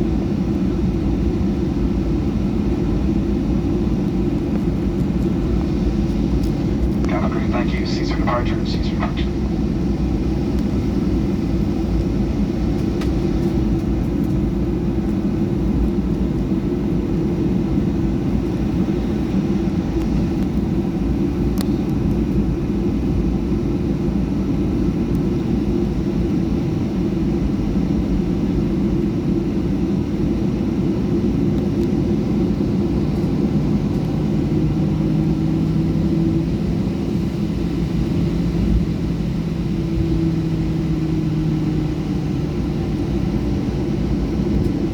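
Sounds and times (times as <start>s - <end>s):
jet engine cabin roar: 0.0s - 44.9s
faint steady tones: 7.0s - 9.5s.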